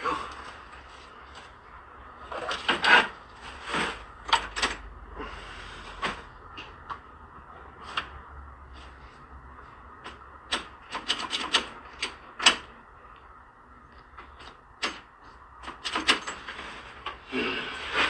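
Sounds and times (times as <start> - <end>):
hands clicking and knocking wiring: 10.0 - 13.3, 13.9 - 16.4.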